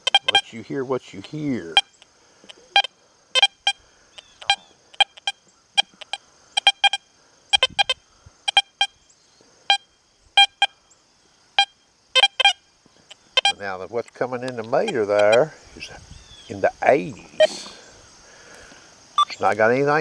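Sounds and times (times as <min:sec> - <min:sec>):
metal detector beeps: 0:00.0 - 0:00.6, 0:01.2 - 0:08.9, 0:10.4 - 0:10.7, 0:11.6 - 0:12.6, 0:13.3 - 0:13.6, 0:14.8 - 0:15.5, 0:17.4 - 0:17.7, 0:19.2 - 0:19.4.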